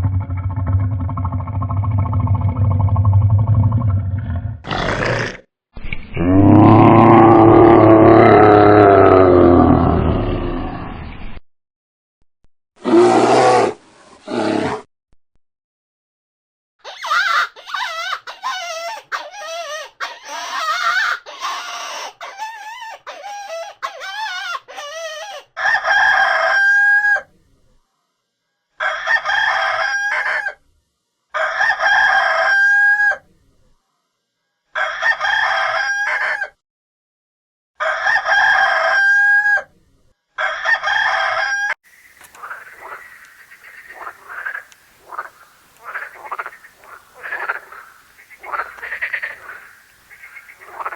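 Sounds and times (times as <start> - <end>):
rooster crowing: 25.6 - 27.2, 28.8 - 30.6, 31.4 - 33.2, 34.8 - 36.6, 37.8 - 39.7, 40.4 - 50.9
chickens clucking: 41.9 - 50.9
noisy animal calling: 41.9 - 50.9.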